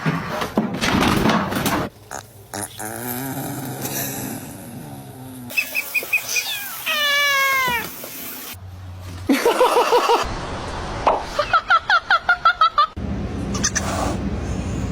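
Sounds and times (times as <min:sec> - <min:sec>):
cat chirping: 0:05.5 - 0:08.0
cat meowing: 0:06.3 - 0:08.0.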